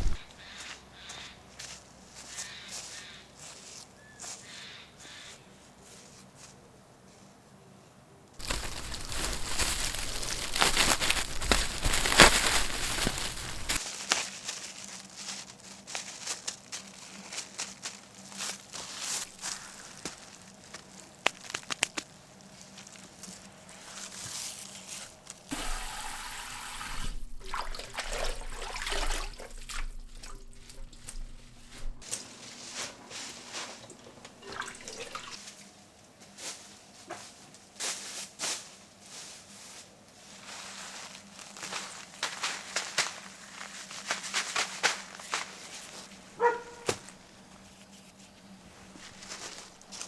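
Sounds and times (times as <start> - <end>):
water rushing: 25.5 - 31.2
water trickling and dripping: 25.5 - 31.4, 33.9 - 35.4
low hum: 27.0 - 32.0.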